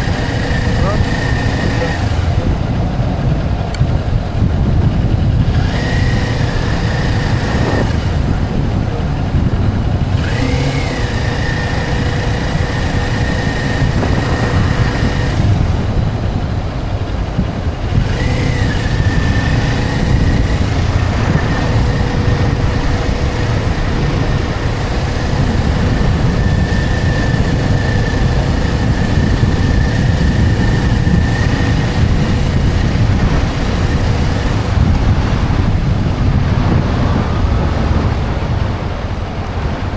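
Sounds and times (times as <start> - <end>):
motorcycle engine running: 0.0 - 39.9
wind rush on microphone: 0.0 - 39.9.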